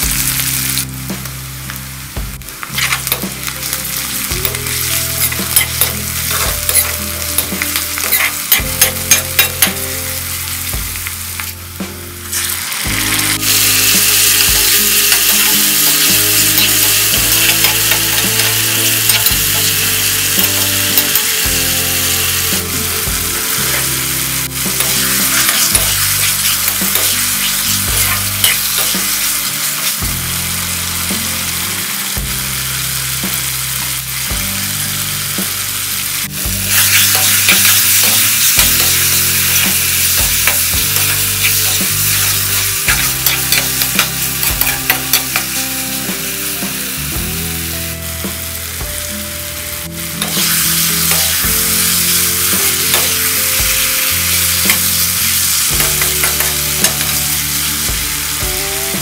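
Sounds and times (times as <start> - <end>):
vegetables sizzling in hot oil: 0.0 - 59.0
spatula scraping a pan: 4.5 - 9.8, 22.4 - 29.4, 36.7 - 45.5.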